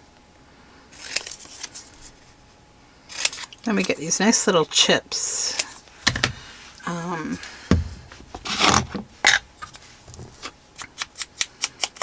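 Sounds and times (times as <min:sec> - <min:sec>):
person humming: 0:06.8 - 0:07.5
paper rubbing and scraping: 0:08.2 - 0:09.0.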